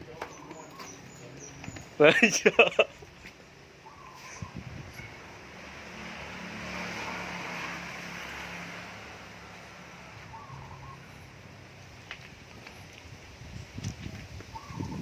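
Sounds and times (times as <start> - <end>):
motor vehicle passing by: 4.1 - 12.0.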